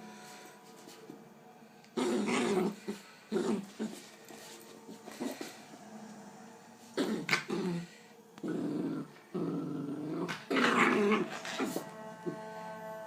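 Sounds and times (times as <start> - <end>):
puppy growling: 2.0 - 4.1, 7.0 - 11.8.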